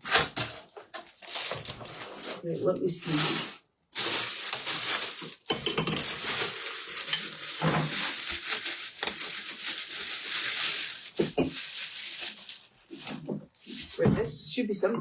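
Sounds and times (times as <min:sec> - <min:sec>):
packaging crinkling: 0:00.0 - 0:02.4, 0:03.0 - 0:14.0.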